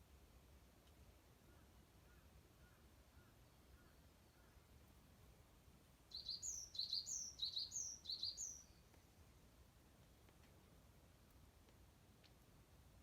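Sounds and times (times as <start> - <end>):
bird singing high double notes: 6.1 - 8.7
faint soft chirps: 6.1 - 9.1.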